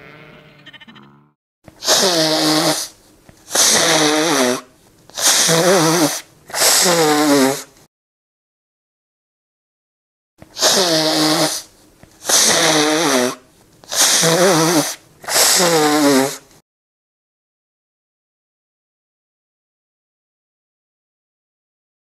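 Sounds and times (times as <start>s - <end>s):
person blowing nose: 1.8s - 7.8s, 10.5s - 16.6s.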